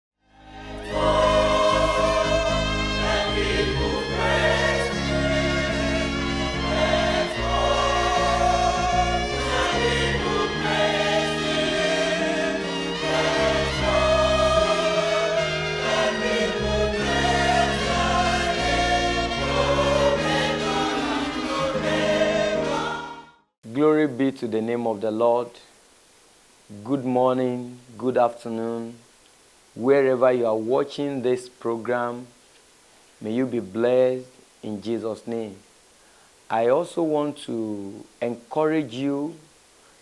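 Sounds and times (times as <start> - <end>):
gospel choir singing: 0.3 - 23.4
instrumental backing: 0.8 - 23.0.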